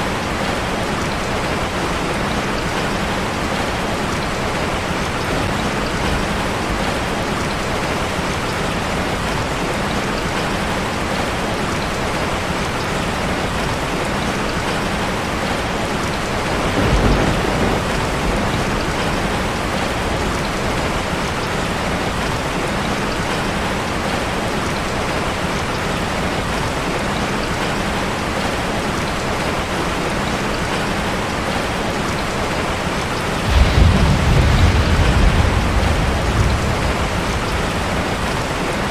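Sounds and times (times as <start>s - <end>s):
rain drumming on metal roof: 0.0s - 38.9s
low rumble of thunder: 15.4s - 21.9s, 33.4s - 38.9s.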